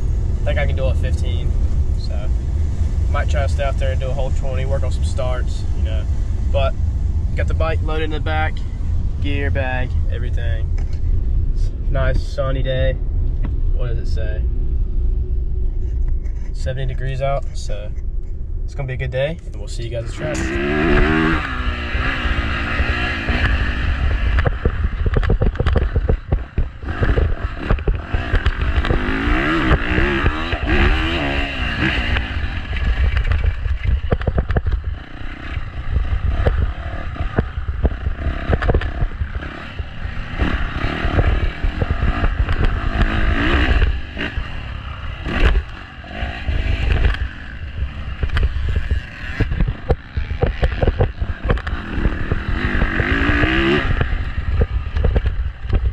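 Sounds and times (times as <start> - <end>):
dirt bike engine revving: 20.0 - 55.9
wind noise on microphone: 20.5 - 55.9.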